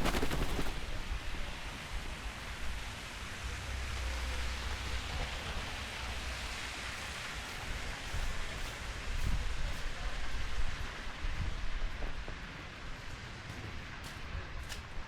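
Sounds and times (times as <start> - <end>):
wind and blowing snow: 0.0 - 1.4.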